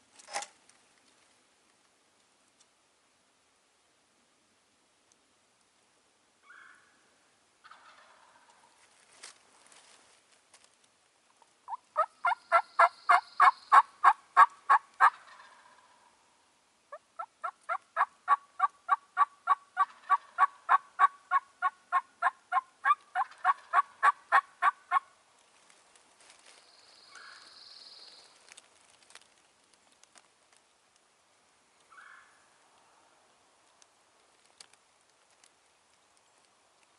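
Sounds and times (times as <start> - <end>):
turkey yelping: 11.7 - 16.0, 16.9 - 25.0.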